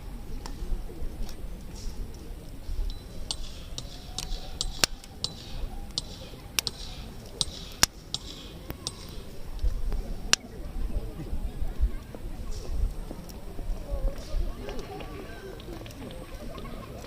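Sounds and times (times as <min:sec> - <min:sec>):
campfire crackling and popping: 0:02.1 - 0:10.4.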